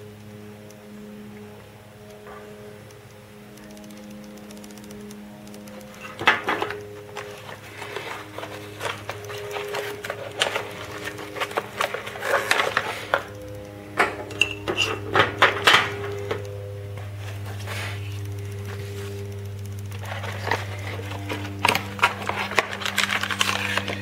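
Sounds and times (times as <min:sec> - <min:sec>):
background music: 0:00.0 - 0:24.0
plastic and cardboard packaging rustling: 0:05.8 - 0:13.7, 0:20.0 - 0:24.0.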